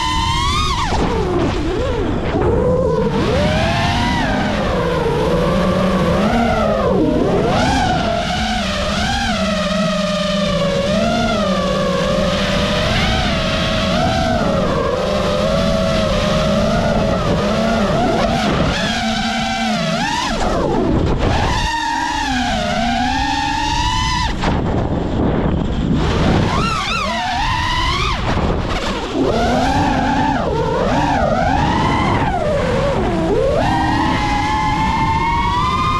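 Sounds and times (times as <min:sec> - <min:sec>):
quadcopter propellers whining: 0:00.0 - 0:35.9
low rumble: 0:23.8 - 0:35.9.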